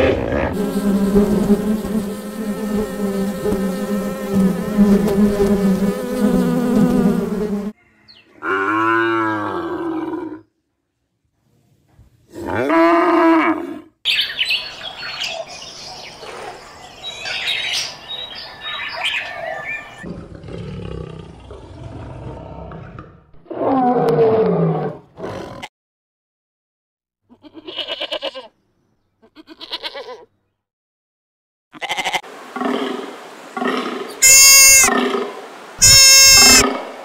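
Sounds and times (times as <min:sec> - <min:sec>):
lion roaring: 0:00.0 - 0:00.6, 0:08.4 - 0:10.4, 0:20.0 - 0:25.7
birds chirping: 0:14.1 - 0:20.0
goat bleating: 0:27.3 - 0:28.5, 0:29.2 - 0:30.3, 0:31.8 - 0:32.2, 0:34.2 - 0:34.9, 0:35.8 - 0:36.6
cow mooing: 0:34.2 - 0:35.0, 0:35.8 - 0:36.8.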